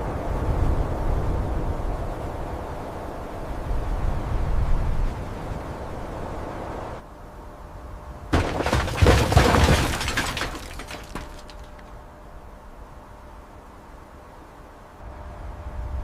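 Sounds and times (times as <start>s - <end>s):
shattering crash: 8.4s - 11.9s.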